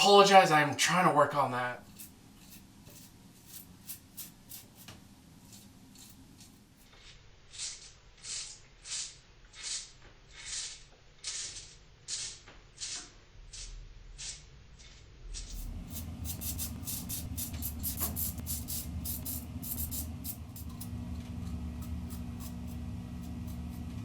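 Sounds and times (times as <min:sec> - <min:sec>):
razor scraping stubble: 0:01.8 - 0:24.0
low steady hum: 0:13.2 - 0:24.0.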